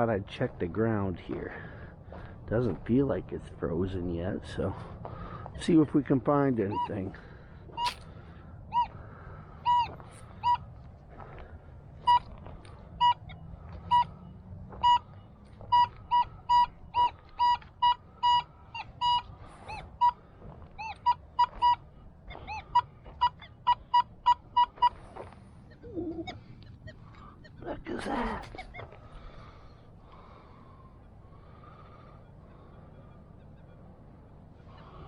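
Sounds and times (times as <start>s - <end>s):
metal detector beeps: 7.8s - 8.0s, 9.6s - 10.6s, 14.8s - 20.2s, 20.8s - 25.0s.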